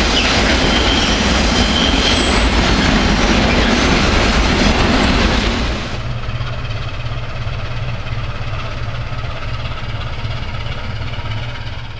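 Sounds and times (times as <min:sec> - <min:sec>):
train wheels on rails: 0:00.0 - 0:11.9
diesel engine idling: 0:05.8 - 0:11.9.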